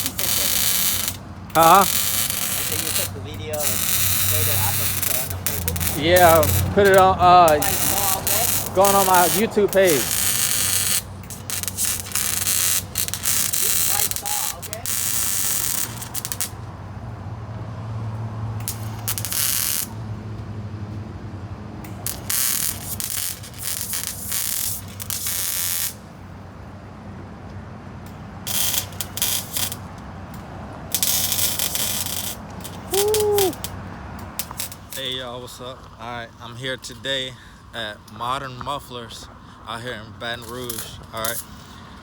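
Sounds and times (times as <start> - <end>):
pneumatic air tool hissing: 0.0 - 16.6, 18.6 - 20.0, 21.9 - 26.0, 28.5 - 29.8, 30.9 - 33.8.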